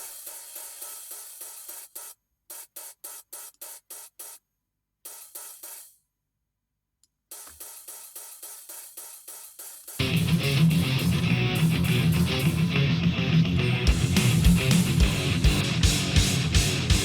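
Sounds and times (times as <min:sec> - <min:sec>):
open hi-hat pattern: 0:00.0 - 0:04.5, 0:05.1 - 0:06.0, 0:07.3 - 0:17.0.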